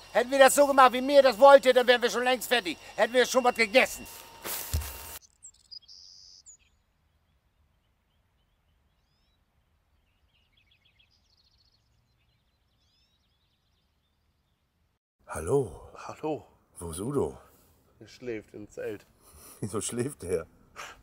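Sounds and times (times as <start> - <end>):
songbird chirps and trills: 5.2 - 14.9.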